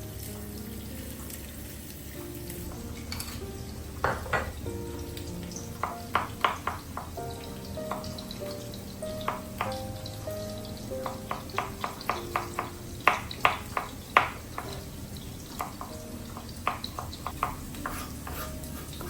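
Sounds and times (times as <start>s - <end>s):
faint sizzle: 0.0s - 19.0s
soft music: 0.0s - 19.0s
utensil knocking against a pan: 4.0s - 4.7s, 5.8s - 8.3s, 9.1s - 9.9s, 11.0s - 14.9s, 15.5s - 19.0s.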